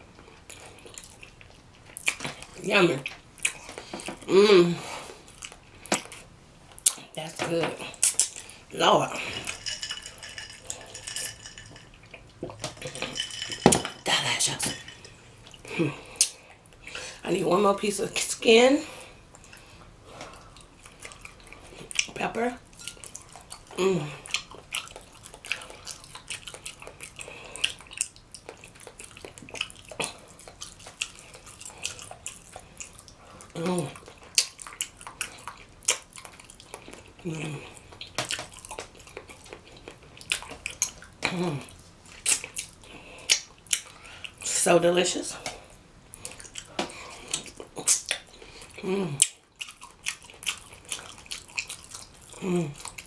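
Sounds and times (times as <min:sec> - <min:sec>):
wet chewing and lip smacking: 0:00.2 - 0:04.3, 0:05.0 - 0:07.2, 0:07.8 - 0:08.7, 0:19.2 - 0:44.5, 0:45.3 - 0:53.0
person humming: 0:04.3 - 0:04.9, 0:23.8 - 0:24.2, 0:37.2 - 0:37.7, 0:41.2 - 0:41.7, 0:48.8 - 0:49.3, 0:52.4 - 0:52.8.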